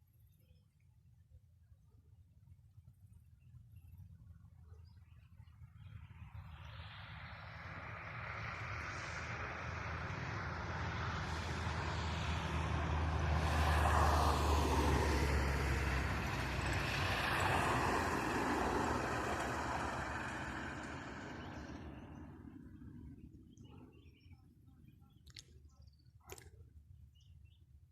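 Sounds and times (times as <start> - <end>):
vehicle engine passing by: 6.3 - 23.4.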